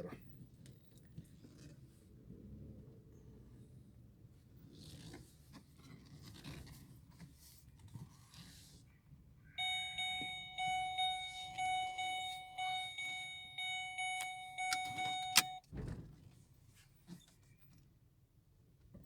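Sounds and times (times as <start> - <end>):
car door click: 9.6 - 15.6
car door warning chime: 9.6 - 15.6.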